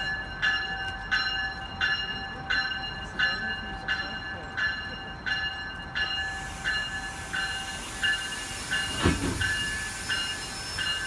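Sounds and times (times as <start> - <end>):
locomotive bell ringing: 0.0 - 11.0
train hissing: 6.2 - 11.0
heavy thump: 8.8 - 9.8.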